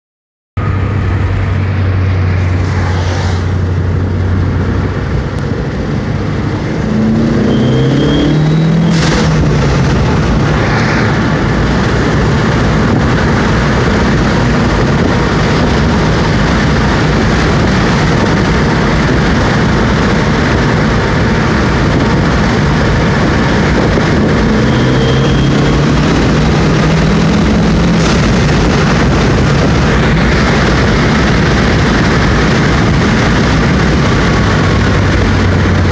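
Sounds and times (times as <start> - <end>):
car engine accelerating: 0.6 - 35.9
road and wind noise: 0.6 - 35.9
turbo whistle: 7.3 - 9.0, 24.6 - 25.9.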